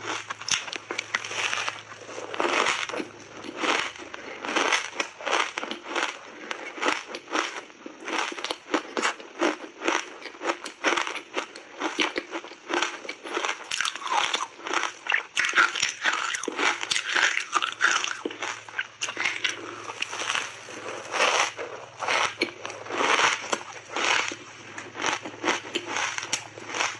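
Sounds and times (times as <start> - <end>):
ice being crunched: 15.4 - 26.9.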